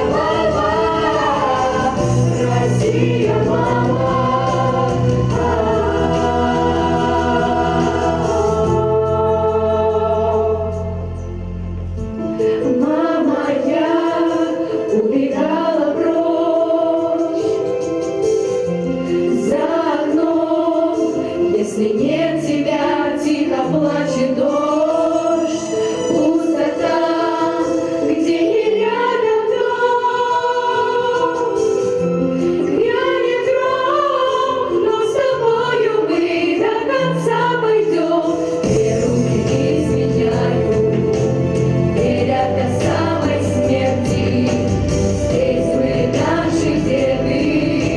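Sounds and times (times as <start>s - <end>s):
vocal ensemble singing: 0.0s - 11.2s, 12.2s - 47.9s.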